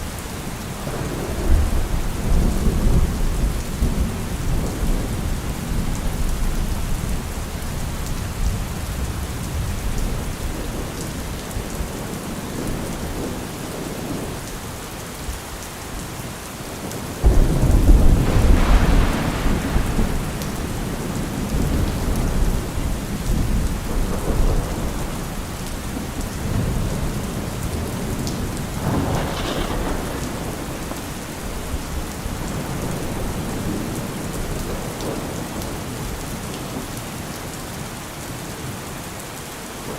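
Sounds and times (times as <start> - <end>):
low rolling thunder: 0.0 - 14.5, 16.8 - 36.9
steady rain: 0.0 - 39.9
loud thunderclap: 17.2 - 35.3.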